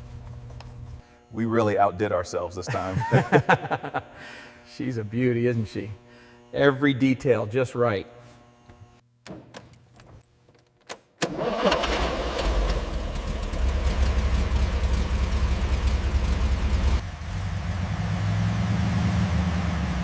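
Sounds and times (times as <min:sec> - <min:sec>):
engine starter clicks: 0:10.9 - 0:14.1
engine running with rumble: 0:11.8 - 0:20.0.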